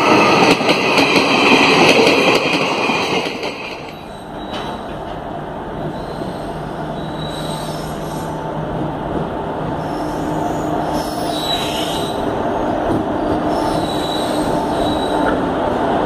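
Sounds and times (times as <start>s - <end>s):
train rumbling along platform: 0.0s - 16.0s
train wheels squealing: 2.0s - 5.0s, 5.8s - 8.4s, 9.8s - 15.4s.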